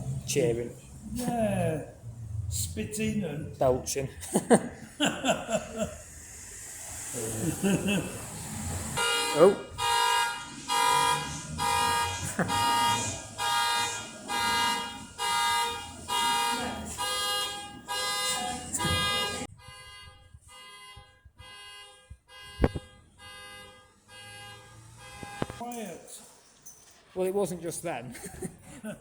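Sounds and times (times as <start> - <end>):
car alarm honking: 9.0 - 25.6.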